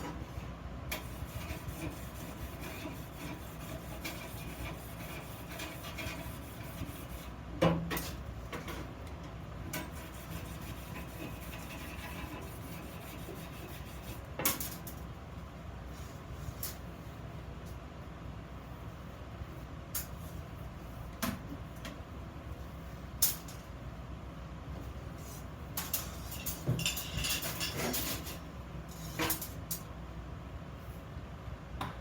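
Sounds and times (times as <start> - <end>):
rubbing and scraping on iron: 0.0 - 7.4, 9.7 - 14.8, 25.2 - 29.6.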